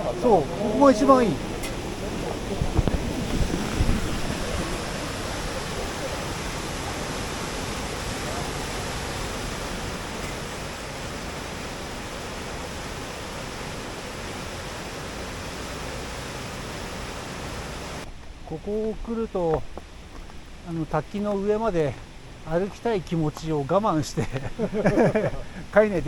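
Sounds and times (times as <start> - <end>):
waterfall roaring: 0.0 - 26.0
low rumbles on microphone: 1.2 - 6.7.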